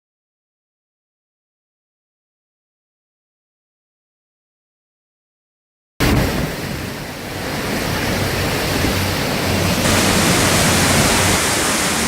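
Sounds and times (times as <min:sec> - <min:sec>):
heavy rain: 0:06.0 - 0:12.0
wind: 0:06.0 - 0:12.0.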